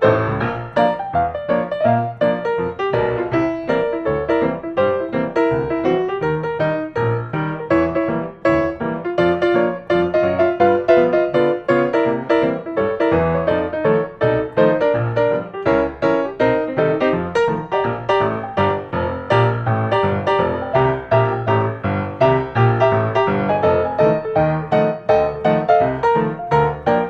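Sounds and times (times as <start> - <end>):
piano music: 0.0 - 27.0.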